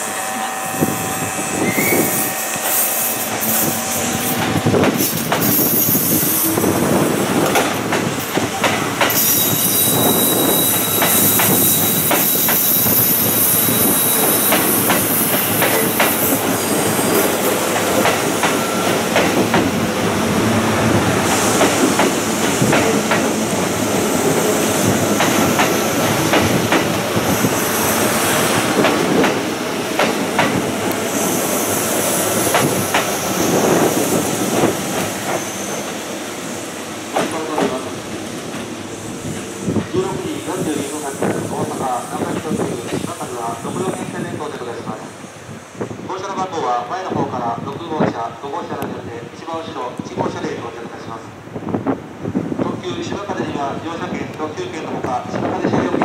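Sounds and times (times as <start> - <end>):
high wheel squeal: 0.0 - 6.7, 9.1 - 17.5, 31.1 - 36.0
electric train rumbling past: 0.0 - 47.7.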